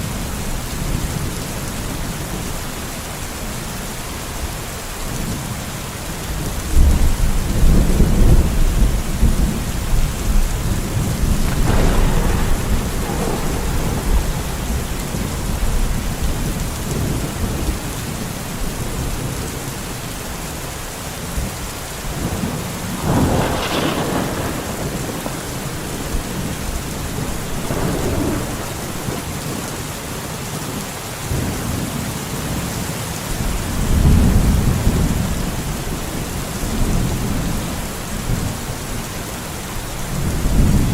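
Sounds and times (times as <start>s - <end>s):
steady rain falling: 0.0s - 40.9s
thunder rumbling: 6.8s - 19.6s, 22.1s - 30.5s.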